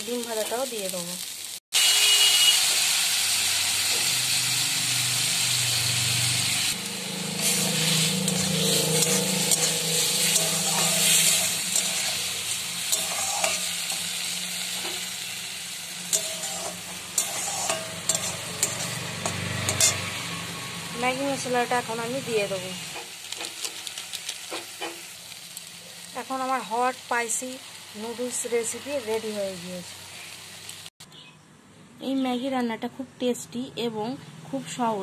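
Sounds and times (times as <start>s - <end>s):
food sizzling in a wok: 0.0s - 30.9s
spatula scraping a pan: 7.2s - 15.2s, 16.0s - 20.1s.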